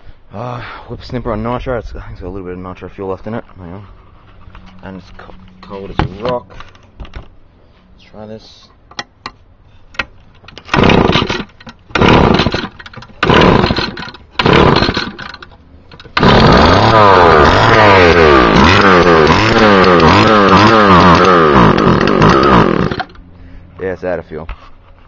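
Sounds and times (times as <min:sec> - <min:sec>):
two-stroke engine pull-started: 0:10.5 - 0:23.2
two-stroke engine revving: 0:10.7 - 0:23.2.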